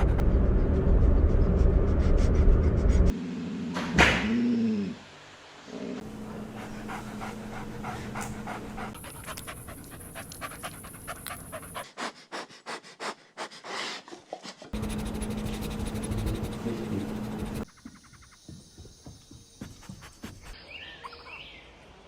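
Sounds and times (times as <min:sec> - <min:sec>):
background hum: 0:00.0 - 0:20.6
puppies panting: 0:06.0 - 0:20.6.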